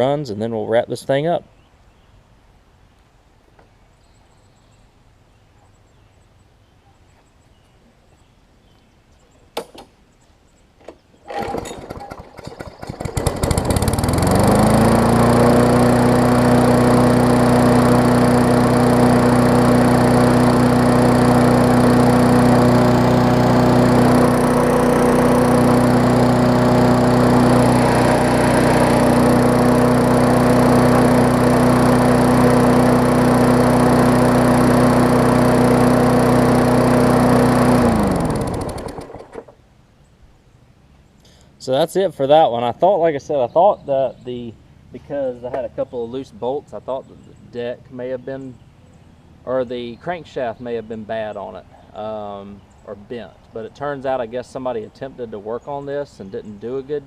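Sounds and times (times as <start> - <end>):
lawn mower engine running: 10.8 - 39.6.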